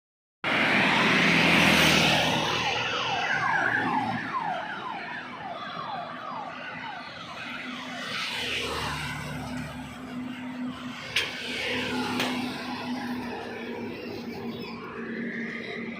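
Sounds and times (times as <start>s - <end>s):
heavy truck passing: 0.4s - 4.6s, 7.8s - 15.9s
falling siren-like horn tones: 0.5s - 15.9s.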